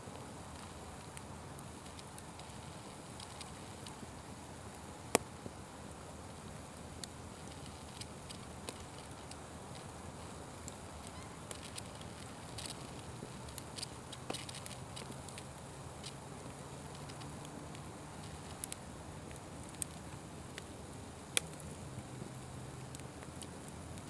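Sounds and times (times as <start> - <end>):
wood fire crackling and popping: 0.1 - 24.0.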